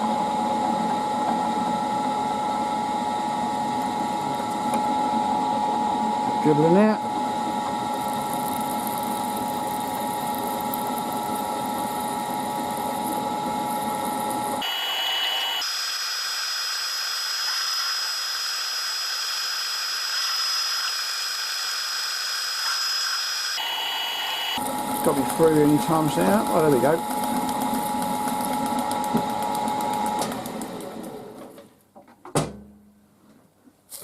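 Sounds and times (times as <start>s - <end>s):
milling machine drilling metal: 23.6s - 30.3s.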